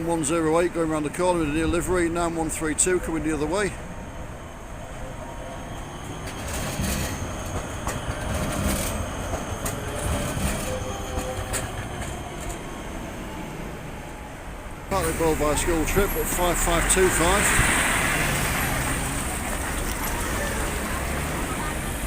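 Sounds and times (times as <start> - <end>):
tram wheels rumbling on rails: 0.0 - 22.0
clacks over track joints: 6.2 - 12.6.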